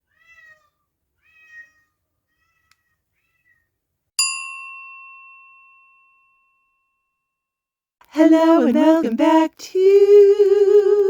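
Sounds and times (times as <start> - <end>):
cat meowing: 0.0 - 3.7.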